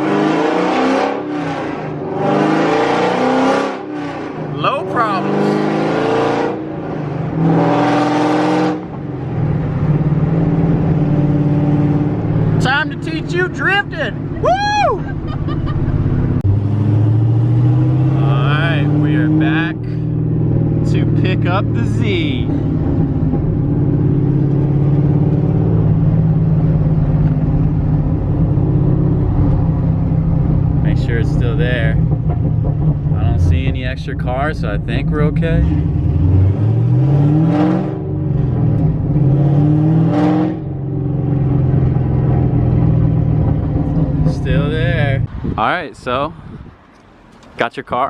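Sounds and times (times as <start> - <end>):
car engine revving: 0.0 - 46.2
road noise rumble: 0.0 - 48.0.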